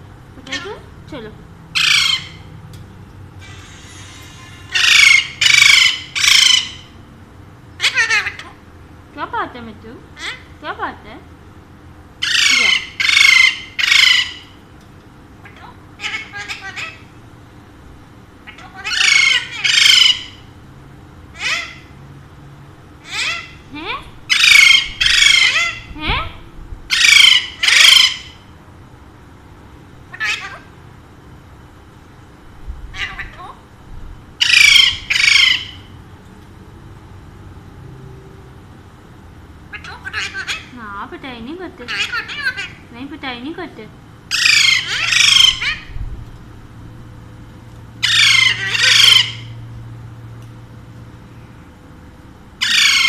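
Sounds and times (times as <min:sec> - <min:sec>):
parakeet squawking: 0:00.4 - 0:00.9, 0:01.7 - 0:02.5, 0:03.4 - 0:07.0, 0:07.8 - 0:08.6, 0:10.2 - 0:10.6, 0:12.2 - 0:14.6, 0:15.4 - 0:17.2, 0:18.4 - 0:20.6, 0:21.3 - 0:22.0, 0:23.0 - 0:28.5, 0:30.1 - 0:30.8, 0:32.9 - 0:33.7, 0:34.4 - 0:36.0, 0:39.7 - 0:40.8, 0:41.8 - 0:42.9, 0:44.3 - 0:46.0, 0:48.0 - 0:49.6, 0:52.6 - 0:53.0.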